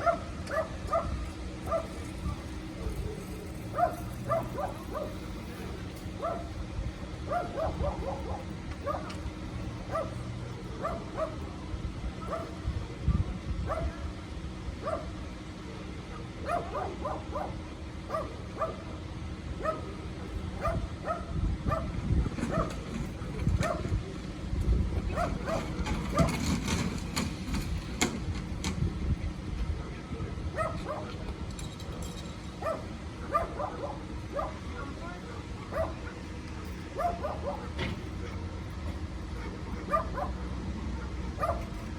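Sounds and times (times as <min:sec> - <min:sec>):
low steady rumble: 0:00.0 - 0:41.9
dog barking in high yaps: 0:13.7 - 0:14.0, 0:16.4 - 0:18.8, 0:20.6 - 0:21.9, 0:32.6 - 0:34.9, 0:37.0 - 0:37.7, 0:39.4 - 0:40.4, 0:41.0 - 0:41.8.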